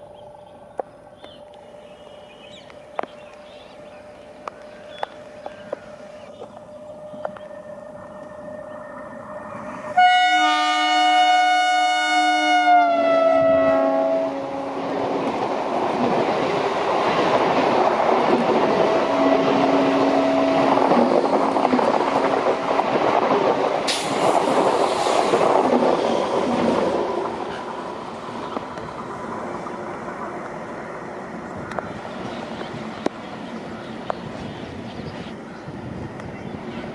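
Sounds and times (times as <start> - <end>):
train horn: 6.8 - 15.2, 18.7 - 21.5
train wheels clattering: 20.6 - 28.9.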